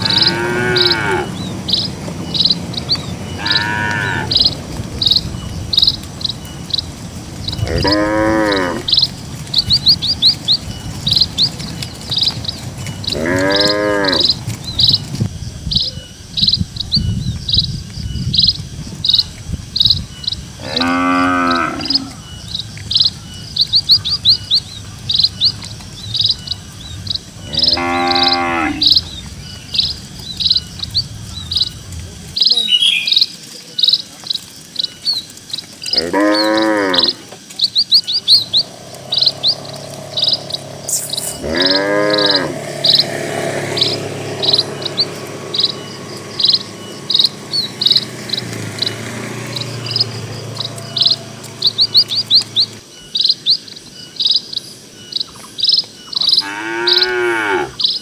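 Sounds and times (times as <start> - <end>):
cattle mooing: 0.0 - 1.4, 3.0 - 4.6, 7.6 - 9.0, 12.9 - 14.4, 20.6 - 22.2, 27.4 - 29.1, 35.9 - 37.3, 38.6 - 52.6, 56.3 - 57.9
birds chirping rapidly: 0.0 - 58.0.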